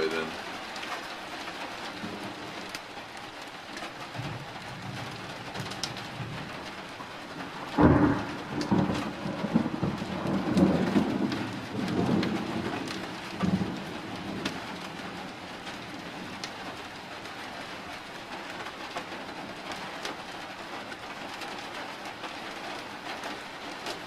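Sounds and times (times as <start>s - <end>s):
steady rain falling: 0.0s - 24.0s
thunder clap and rumble: 1.9s - 2.8s, 3.9s - 17.8s.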